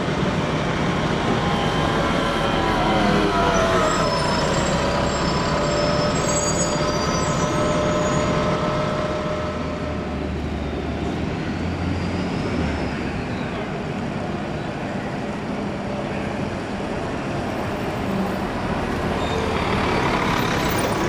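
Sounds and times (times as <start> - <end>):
heavy vehicle engine rumble: 0.0 - 21.0
vehicle whine: 0.0 - 21.0
thin high squealing tones: 0.2 - 11.2.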